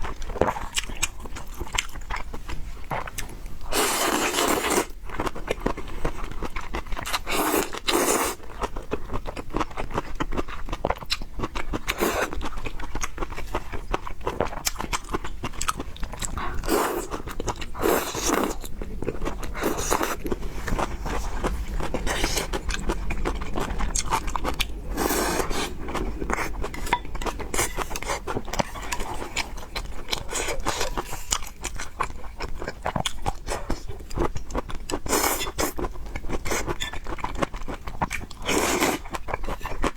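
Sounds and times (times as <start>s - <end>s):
chewing fried noodles: 0.0s - 39.9s.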